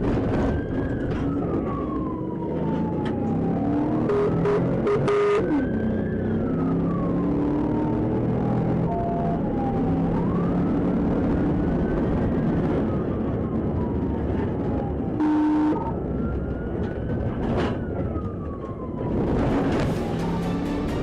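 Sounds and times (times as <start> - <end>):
engine and road noise: 0.0 - 21.0
police siren wailing: 0.0 - 21.0
horn blast: 4.1 - 5.6, 15.2 - 15.8, 19.3 - 21.0.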